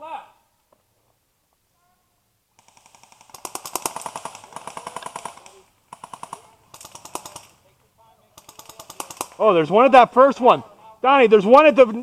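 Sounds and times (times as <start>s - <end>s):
airsoft guns firing full-auto: 2.6s - 7.6s, 8.4s - 9.6s.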